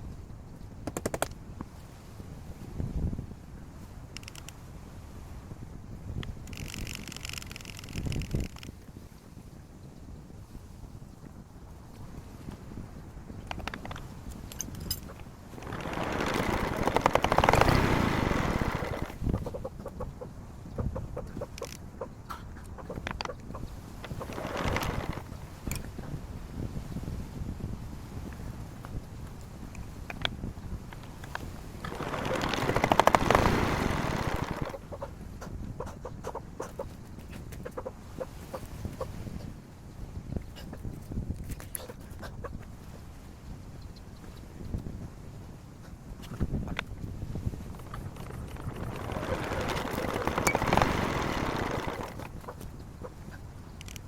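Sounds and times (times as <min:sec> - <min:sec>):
diesel engine cranking: 0:15.5 - 0:19.2, 0:31.8 - 0:34.8, 0:48.1 - 0:52.4
chickens clucking: 0:17.4 - 0:25.3, 0:34.3 - 0:37.0, 0:37.6 - 0:39.1
hens clucking: 0:32.0 - 0:36.9.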